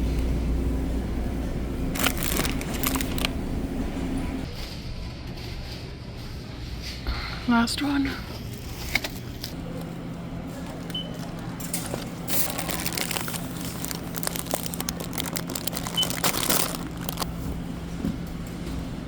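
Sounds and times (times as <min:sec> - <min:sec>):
steady low hum: 0:00.0 - 0:04.5
crinkling handling noise: 0:01.9 - 0:03.5, 0:10.5 - 0:17.6.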